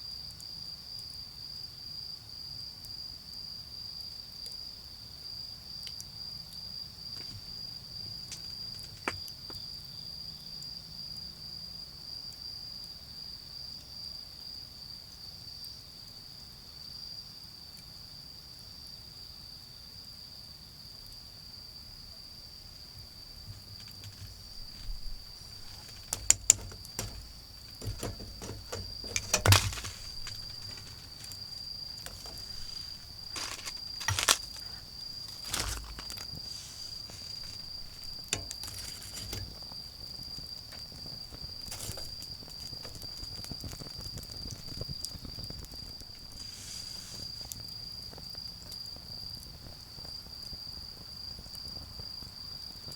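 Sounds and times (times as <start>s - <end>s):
cricket trilling: 21.2s - 52.9s
fire crackling and popping: 23.0s - 48.0s.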